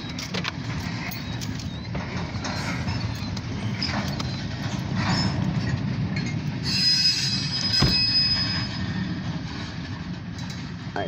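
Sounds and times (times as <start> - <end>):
train cars rolling past: 0.0 - 11.0
high metal squeal: 0.9 - 5.8, 6.6 - 9.8.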